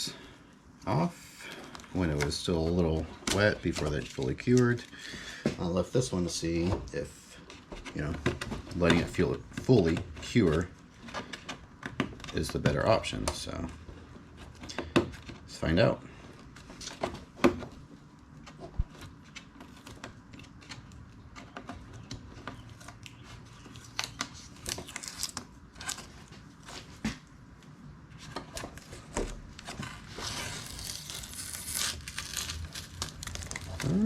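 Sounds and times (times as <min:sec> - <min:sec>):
tape peeling off rubbery coating: 0:18.7 - 0:27.2, 0:28.3 - 0:34.0.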